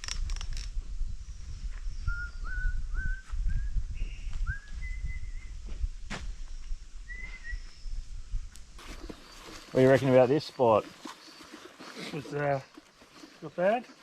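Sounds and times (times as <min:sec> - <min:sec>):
high long whistles: 0:01.9 - 0:05.6, 0:07.0 - 0:07.9
short rising whistle notes: 0:07.1 - 0:07.8.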